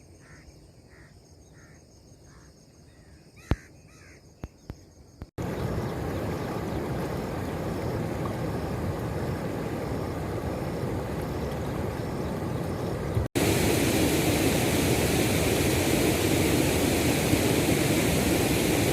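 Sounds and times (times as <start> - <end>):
river water rushing: 5.4 - 18.9.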